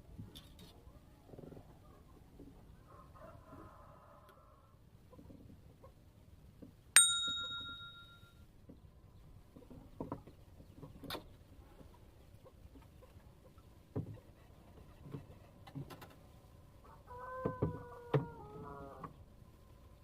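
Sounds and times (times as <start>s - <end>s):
rooster crowing: 2.9s - 4.7s, 16.8s - 19.1s.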